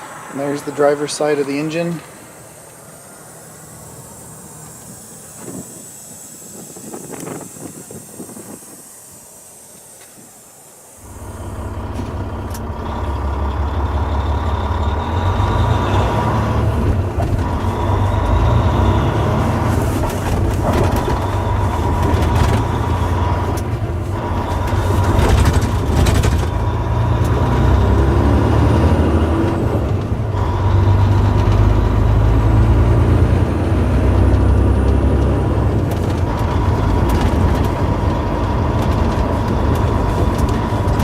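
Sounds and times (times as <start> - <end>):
thin steady whine: 0.0 - 13.5
diesel truck engine rumble: 0.0 - 41.0.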